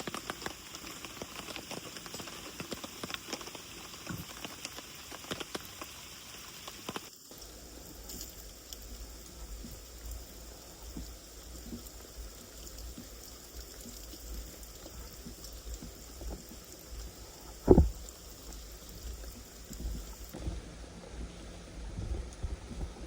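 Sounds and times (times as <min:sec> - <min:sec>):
steady rain with drops ticking: 0:00.0 - 0:23.0
faint high insect trill: 0:03.4 - 0:20.4
loud thump: 0:17.6 - 0:18.0.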